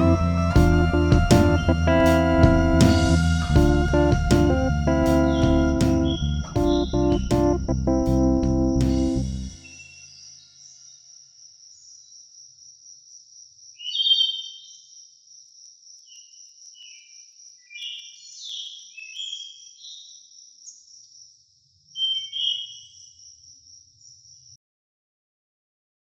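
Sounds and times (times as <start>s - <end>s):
bird chirps and song: 4.9s - 11.1s, 13.7s - 15.2s, 15.9s - 24.6s.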